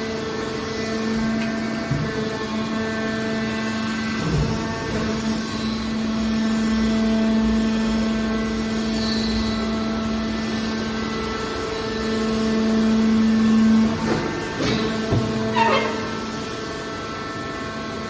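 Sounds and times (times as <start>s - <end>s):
hydraulic power unit humming: 0.0s - 18.0s.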